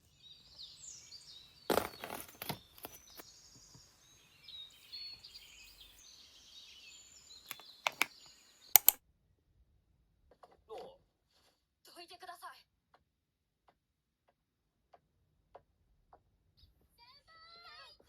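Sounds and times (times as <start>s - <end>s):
small birds chirping: 0.0s - 9.0s
sharp knocks or clicks: 7.5s - 8.1s, 8.8s - 9.0s.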